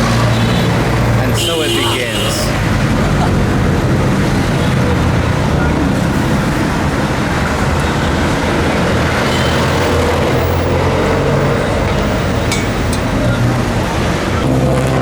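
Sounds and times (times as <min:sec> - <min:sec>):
engine hum: 0:00.0 - 0:15.0
road traffic: 0:00.0 - 0:15.0.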